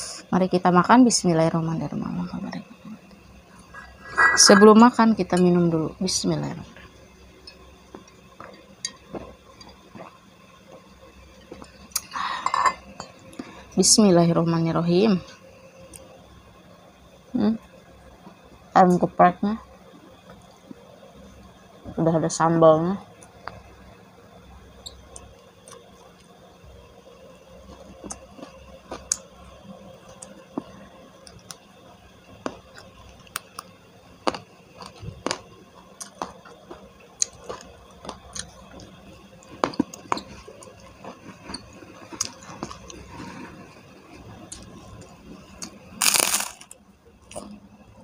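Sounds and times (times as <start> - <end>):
chewing crispy fried chicken: 32.4 - 43.8, 44.4 - 47.6
cracker crunch: 34.2 - 35.4, 45.6 - 47.5.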